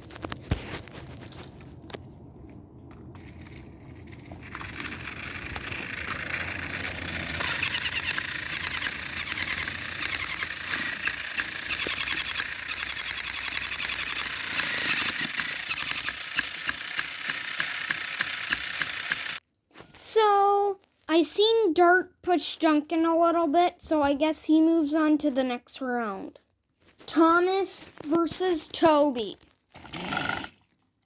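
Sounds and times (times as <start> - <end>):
toy train gears clicking: 3.2 - 19.4
toy train motors whirring: 3.2 - 19.4.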